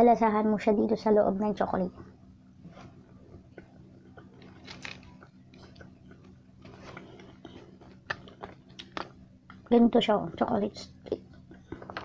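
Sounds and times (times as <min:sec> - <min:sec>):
chewing and crunching: 0:03.5 - 0:09.7, 0:11.1 - 0:12.0.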